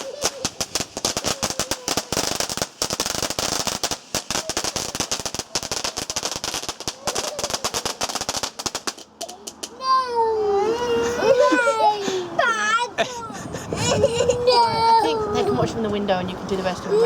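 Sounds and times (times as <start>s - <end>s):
firework crackling: 0.0s - 9.9s.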